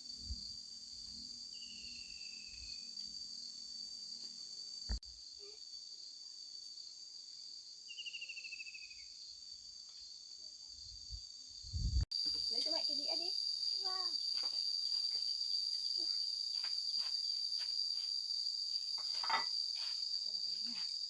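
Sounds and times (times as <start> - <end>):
insects chorus: 0.0 - 21.0.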